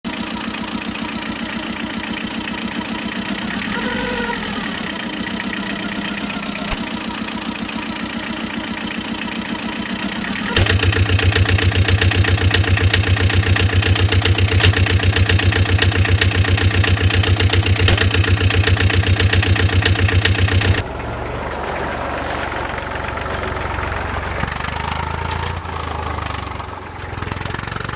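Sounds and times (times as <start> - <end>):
engine idling with knocking: 0.0 - 27.9
engine running: 0.0 - 27.9
rising and falling tone: 3.2 - 7.2.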